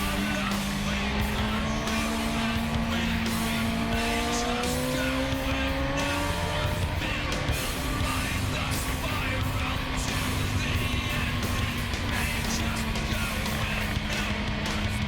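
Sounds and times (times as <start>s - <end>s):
background music: 0.0s - 15.0s
motorcycle engine at high revs: 0.0s - 15.0s.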